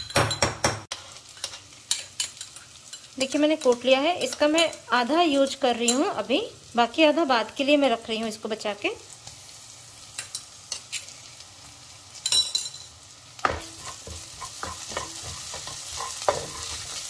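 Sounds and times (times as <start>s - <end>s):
onions sizzling in hot oil: 0.9s - 17.0s
spatula scraping pan: 13.5s - 17.0s.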